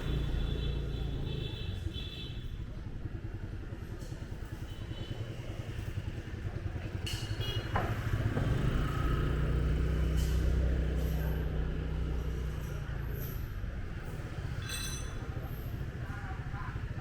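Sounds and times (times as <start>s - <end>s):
motorbike engine running: 0.0s - 17.0s
street traffic: 0.0s - 17.0s.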